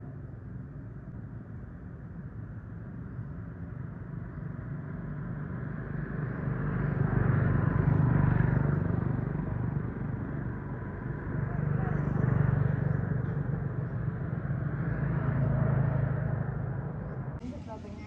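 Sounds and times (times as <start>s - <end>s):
vehicle engine humming: 5.6s - 18.0s.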